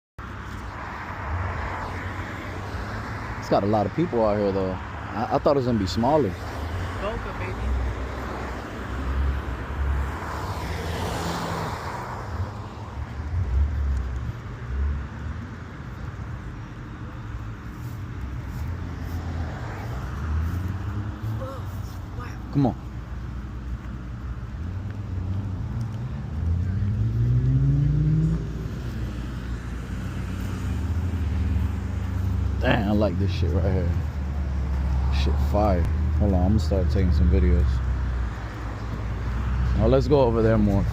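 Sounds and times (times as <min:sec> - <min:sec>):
car driving past: 0:06.5 - 0:15.4, 0:24.7 - 0:40.9.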